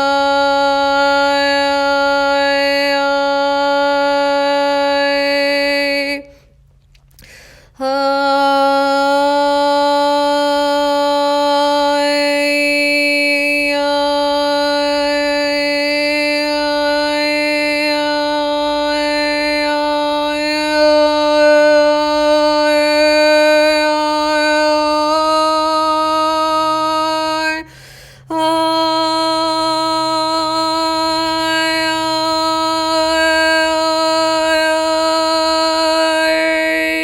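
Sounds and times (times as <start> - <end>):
woman singing a steady vowel: 0.0 - 6.4, 7.7 - 37.0
woman breathing: 6.3 - 7.8, 27.6 - 28.3.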